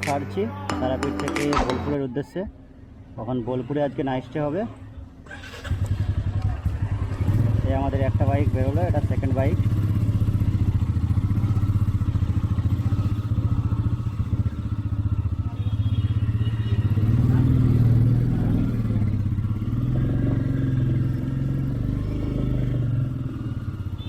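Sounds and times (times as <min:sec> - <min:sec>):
motorcycle engine running: 0:05.7 - 0:24.0.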